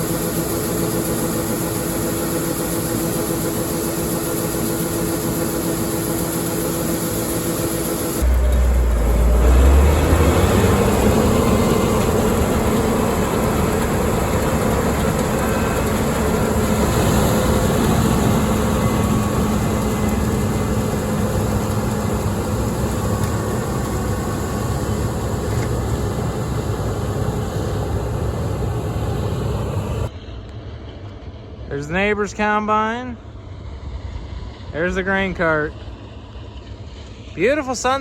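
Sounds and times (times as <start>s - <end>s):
diesel farm machine rumbling: 0.0s - 30.2s.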